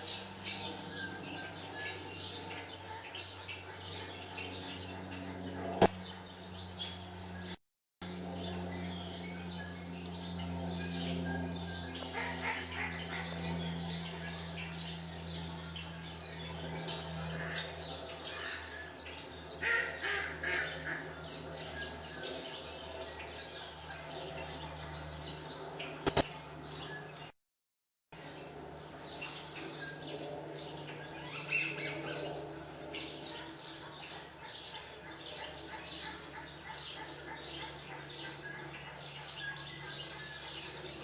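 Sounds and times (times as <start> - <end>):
steady low hum: 0.0 - 27.4, 28.2 - 41.0
sharp click: 26.0 - 26.3
small birds chirping: 28.2 - 41.0.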